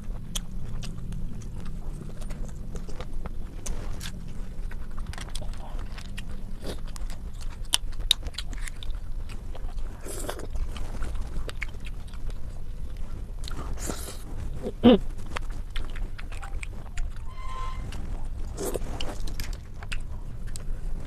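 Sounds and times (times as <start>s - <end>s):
person biting and chewing: 0.0s - 17.3s, 17.9s - 20.7s
brief squeak: 17.2s - 18.0s.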